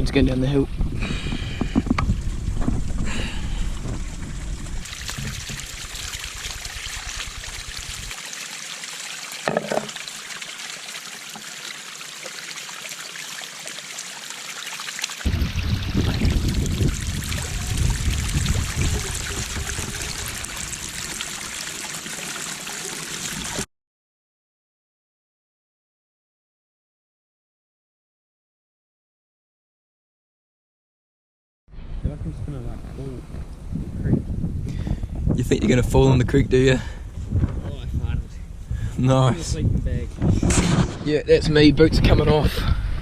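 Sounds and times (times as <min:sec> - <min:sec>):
wind buffeting microphone: 0:00.0 - 0:08.2, 0:15.2 - 0:21.2, 0:31.8 - 0:43.0
creek water running: 0:01.1 - 0:23.7.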